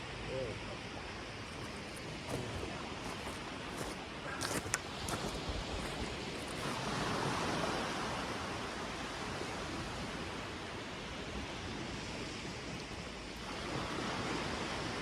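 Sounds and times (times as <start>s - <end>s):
surf breaking on beach: 1.5s - 15.0s.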